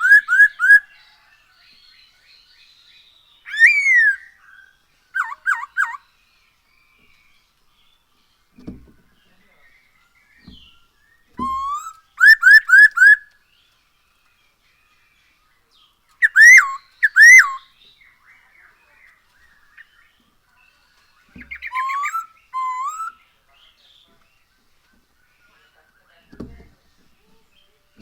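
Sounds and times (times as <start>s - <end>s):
bird singing whistled phrases: 0.0s - 0.9s, 3.4s - 6.0s, 10.6s - 13.3s, 16.2s - 17.8s, 21.4s - 23.2s.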